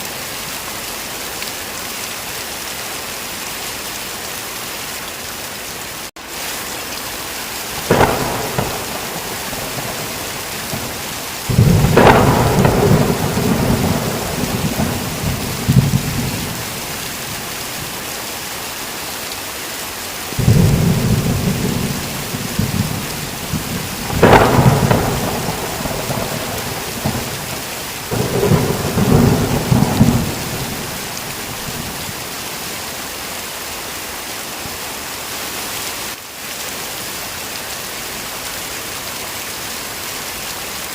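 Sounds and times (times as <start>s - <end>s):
heavy rain: 0.0s - 40.9s
thunder cracks: 7.8s - 17.6s, 20.4s - 32.3s
thunder rumbling: 7.8s - 18.0s, 20.4s - 32.6s.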